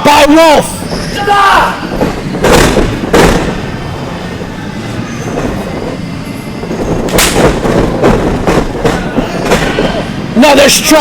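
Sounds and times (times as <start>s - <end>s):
steady rumbling noise: 0.0s - 11.0s
wrestling strike smacks: 2.4s - 3.6s.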